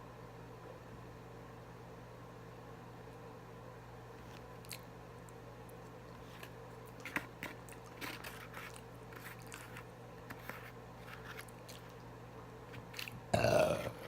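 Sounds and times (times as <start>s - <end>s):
faint steady hum: 0.0s - 14.0s
person chewing and crunching: 4.3s - 4.9s, 6.1s - 12.0s, 12.7s - 14.0s.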